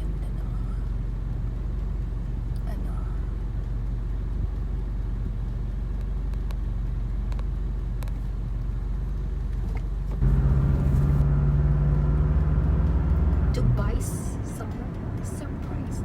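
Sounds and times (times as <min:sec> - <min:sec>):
car road noise rumble: 0:00.0 - 0:16.0.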